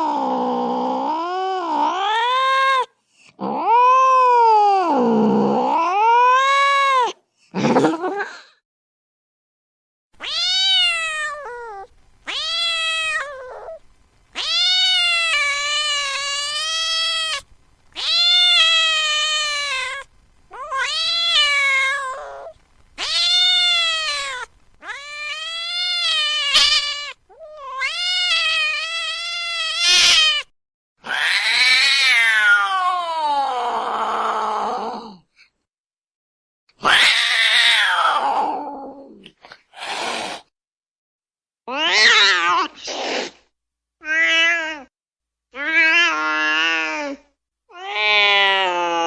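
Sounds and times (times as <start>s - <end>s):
cat meowing: 10.2s - 33.6s, 36.8s - 38.7s, 41.7s - 43.3s, 44.0s - 44.9s, 45.6s - 49.0s.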